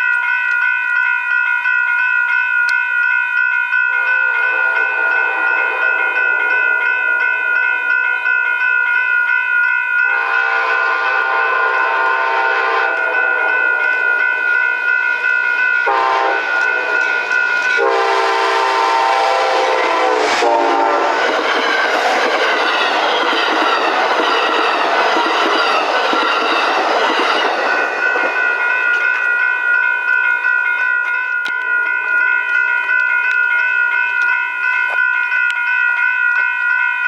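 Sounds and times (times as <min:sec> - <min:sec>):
train wheels rumbling on rails: 0:03.9 - 0:35.1
train horn blast: 0:10.1 - 0:13.6, 0:15.8 - 0:21.2.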